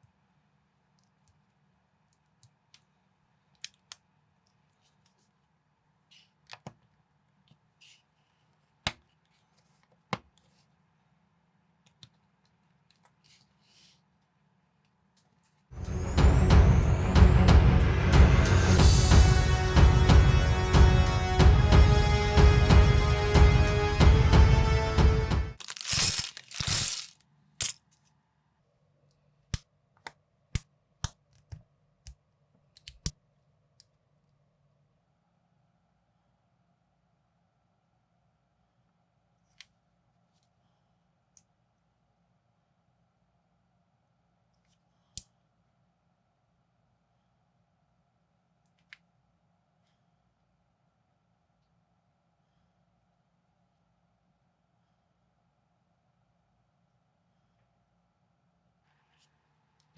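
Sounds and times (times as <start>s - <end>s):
loose plastic pieces rustling: 25.6s - 27.8s.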